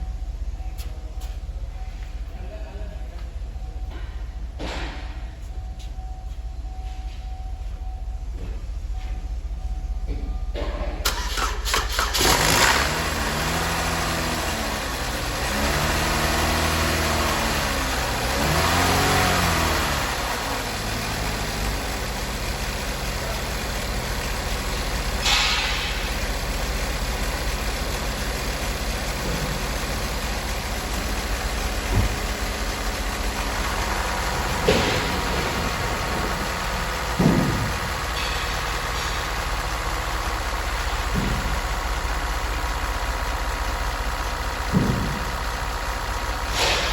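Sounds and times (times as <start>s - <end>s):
engine revving and idling: 10.6s - 46.9s.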